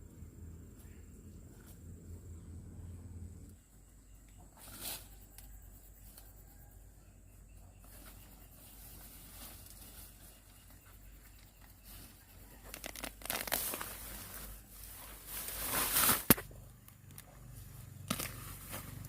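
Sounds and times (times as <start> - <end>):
plant leaves rustling and tearing: 11.4 - 17.4, 18.0 - 19.0.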